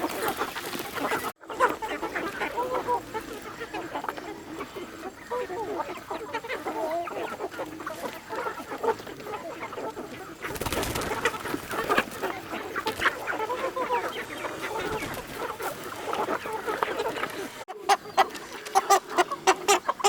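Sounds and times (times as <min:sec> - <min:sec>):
rustling or scraping noise: 0:00.0 - 0:03.6, 0:10.4 - 0:18.8
chickens clucking: 0:00.0 - 0:20.0.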